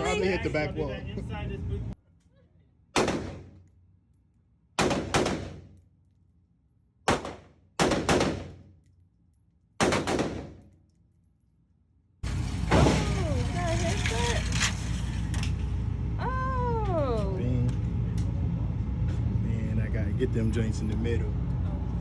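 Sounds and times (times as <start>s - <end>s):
gunshots echoing indoors: 3.0s - 3.7s, 4.8s - 5.8s, 7.1s - 8.8s, 9.8s - 10.8s.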